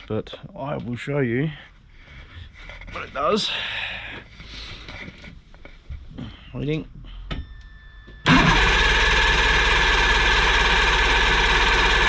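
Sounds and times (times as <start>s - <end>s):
outboard engine cranking: 8.3s - 12.0s.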